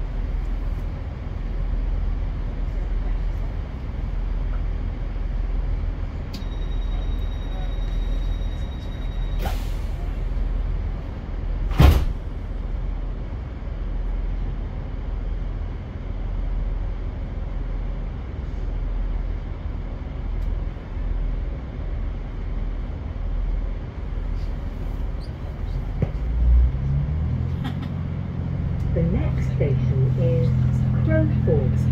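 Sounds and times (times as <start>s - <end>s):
train engine humming: 0.0s - 31.9s
sharp thump: 11.7s - 12.2s.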